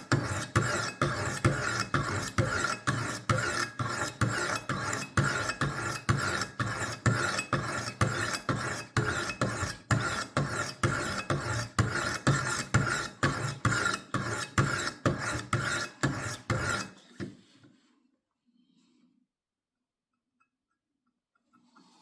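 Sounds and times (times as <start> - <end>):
sharpening stones stroking knife: 0.1 - 16.9.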